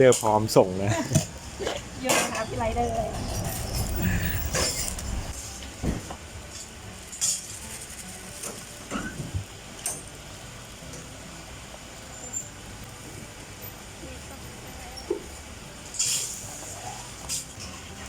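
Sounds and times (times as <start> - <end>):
cups and utensils clinking: 3.2 - 5.4.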